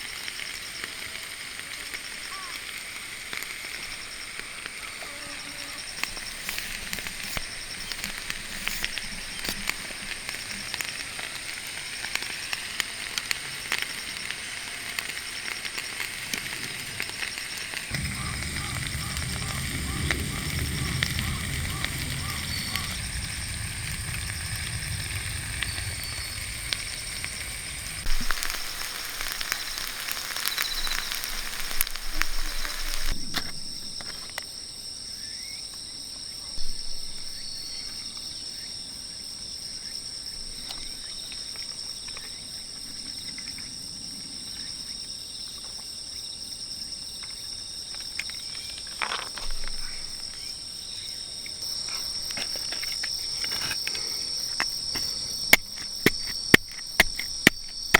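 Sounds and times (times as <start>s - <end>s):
crackling and sizzling: 0.0s - 34.6s, 46.8s - 57.9s
crickets and night insects: 0.0s - 57.9s.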